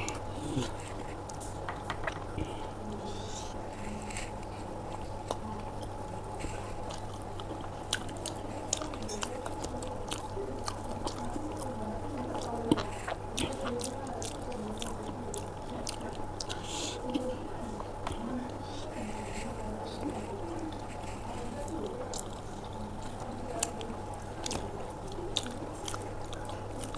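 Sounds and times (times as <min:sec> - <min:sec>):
low electrical hum: 0:00.0 - 0:26.9
wet chewing and mouth smacks: 0:04.2 - 0:26.9.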